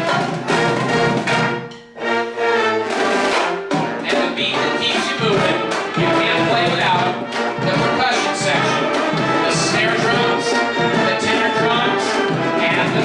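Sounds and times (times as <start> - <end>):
brass band playing chords: 0.0 - 13.0.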